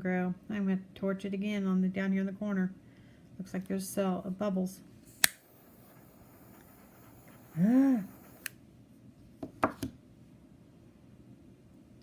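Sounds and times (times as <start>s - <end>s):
sharp clicks: 5.2s - 5.9s
woman humming hmm: 7.6s - 8.1s.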